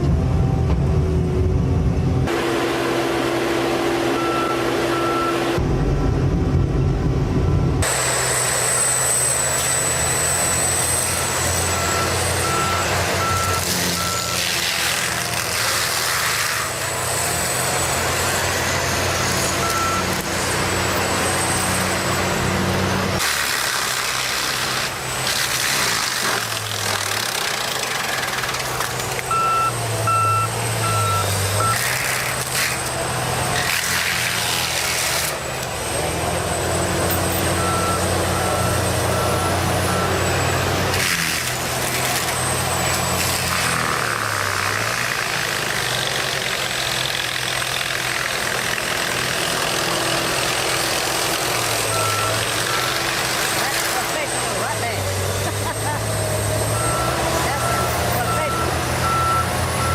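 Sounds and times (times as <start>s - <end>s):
heavy machinery engines: 0.0s - 59.9s
reversing alarm beeping: 4.1s - 5.6s, 7.3s - 14.4s, 19.0s - 22.4s, 29.2s - 32.0s, 36.5s - 41.3s, 51.8s - 53.6s, 56.6s - 59.9s.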